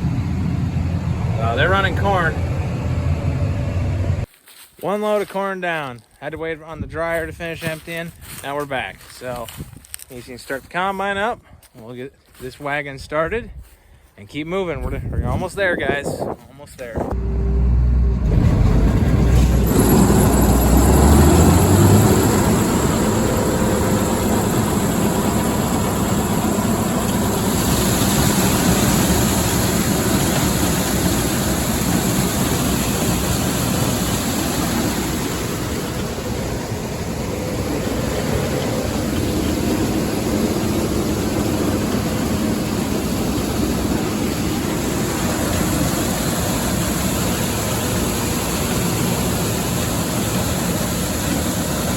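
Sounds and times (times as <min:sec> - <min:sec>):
combine engine and threshing roar: 0:00.0 - 0:04.3, 0:17.0 - 0:51.9
deep rumble: 0:17.0 - 0:47.8.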